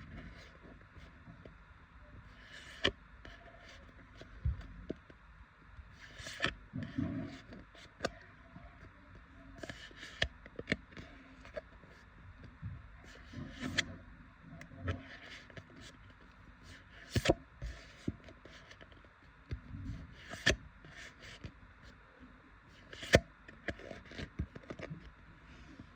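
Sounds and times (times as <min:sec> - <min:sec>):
trading cards sliding and rubbing: 0:00.1 - 0:01.1, 0:02.3 - 0:04.3, 0:05.9 - 0:08.1, 0:09.6 - 0:10.3, 0:13.0 - 0:13.9, 0:14.9 - 0:19.0, 0:19.9 - 0:21.5, 0:22.8 - 0:24.8.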